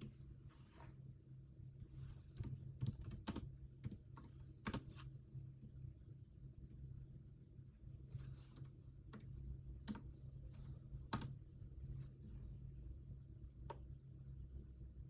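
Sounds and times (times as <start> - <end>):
keyboard keystrokes: 2.2 - 5.0, 9.9 - 11.4.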